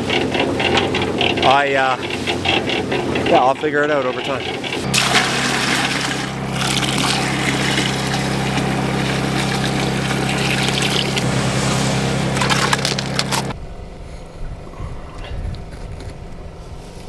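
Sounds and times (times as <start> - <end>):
motor running: 0.0 - 13.6
wet sloshing churn: 0.0 - 13.6.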